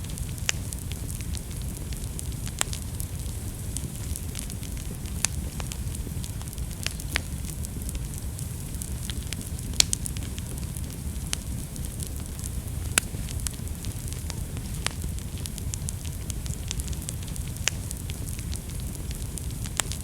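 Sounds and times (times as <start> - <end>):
low rumble of flames: 0.0 - 20.0
wood fire popping and crackling: 0.0 - 20.0.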